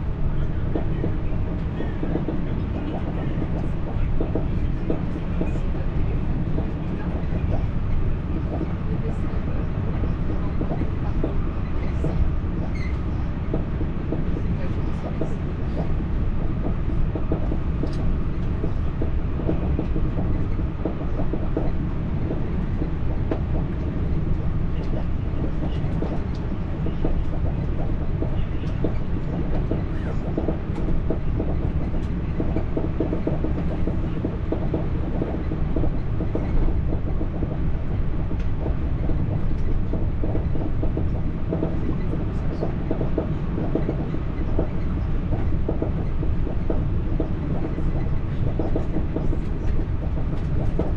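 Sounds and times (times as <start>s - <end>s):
train rumbling inside carriage: 0.0s - 50.9s
wheels clicking on rails: 10.0s - 50.9s.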